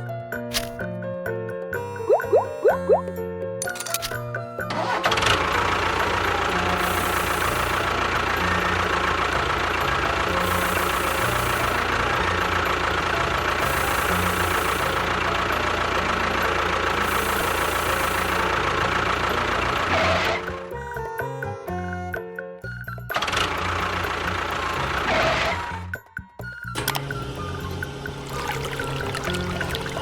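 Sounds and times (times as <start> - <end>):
engine running: 3.6 - 20.9, 23.1 - 25.9, 26.8 - 30.0
hiss: 6.8 - 7.9, 10.3 - 12.0, 17.0 - 18.5.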